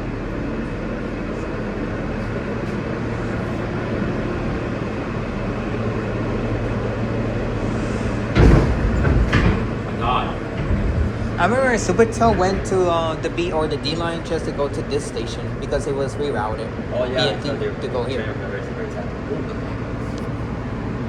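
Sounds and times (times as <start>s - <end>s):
subway car hum: 0.0s - 21.0s
loud sudden knock or rattle: 8.4s - 11.5s.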